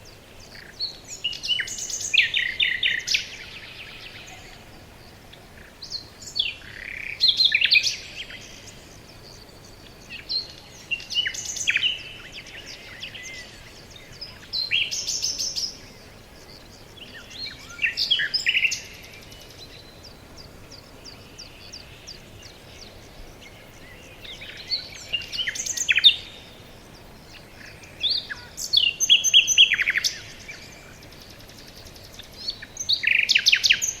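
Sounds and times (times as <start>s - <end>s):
faint background hiss: 0.0s - 34.0s
songbirds chirping and trilling: 0.0s - 34.0s.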